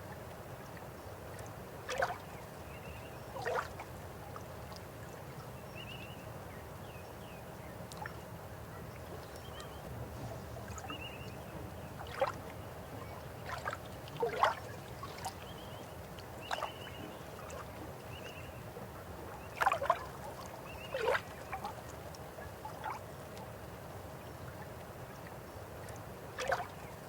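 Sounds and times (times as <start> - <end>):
river water flowing: 0.0 - 6.8, 7.4 - 27.0
water gurgles and splashes: 1.4 - 2.3, 3.4 - 4.0, 11.7 - 12.6, 13.4 - 15.6, 19.1 - 22.0, 25.9 - 26.9.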